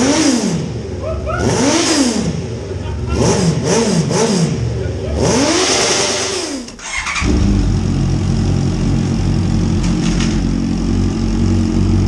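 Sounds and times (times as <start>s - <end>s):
motorcycle engine idling: 7.0s - 12.0s.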